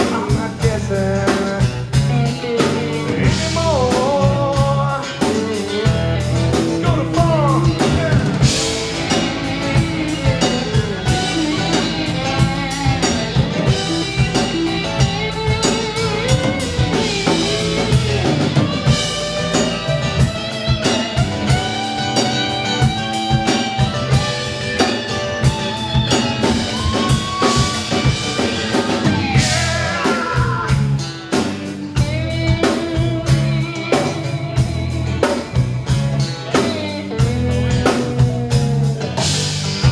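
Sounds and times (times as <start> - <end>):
drum kit: 0.0 - 39.9
electric guitar lines with bends: 0.0 - 39.9.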